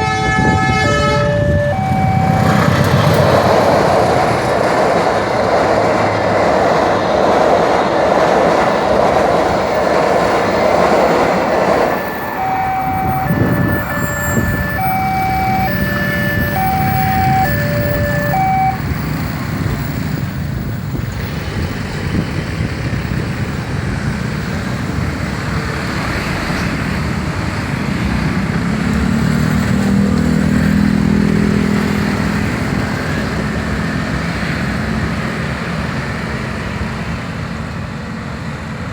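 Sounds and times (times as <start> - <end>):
two-note electronic warning tone: 0.0 - 3.0, 11.8 - 18.9
engine humming: 0.0 - 6.2, 9.2 - 19.8
road traffic noise: 0.0 - 38.9
train wheels rumbling: 0.0 - 38.9.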